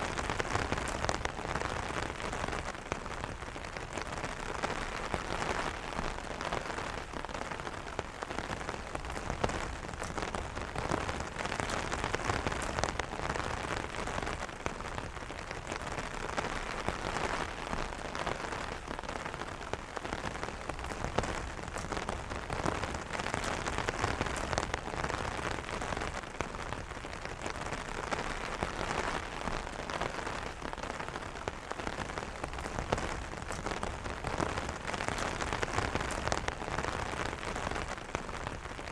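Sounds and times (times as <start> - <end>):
rain pattering on umbrella: 0.0 - 38.9.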